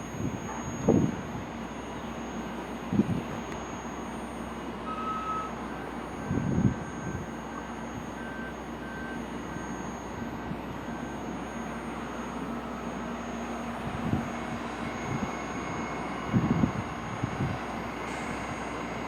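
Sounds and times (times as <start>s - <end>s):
subway equipment humming: 0.0s - 19.0s
short electronic beeps: 3.4s - 13.8s.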